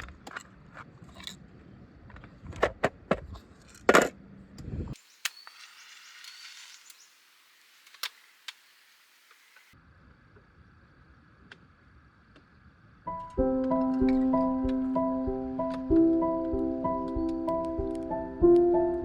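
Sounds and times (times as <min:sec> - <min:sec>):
faint hiss: 0:05.0 - 0:09.8.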